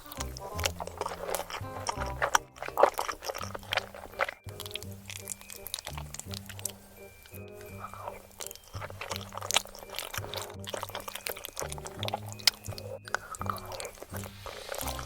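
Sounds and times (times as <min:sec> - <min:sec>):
close-miked eating sounds: 0:00.0 - 0:15.0
background music with bass line: 0:11.6 - 0:15.0.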